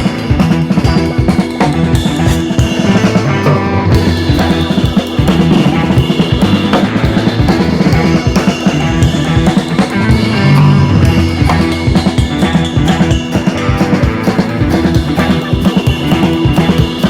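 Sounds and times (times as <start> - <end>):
rock music with drums and guitar: 0.0 - 17.0.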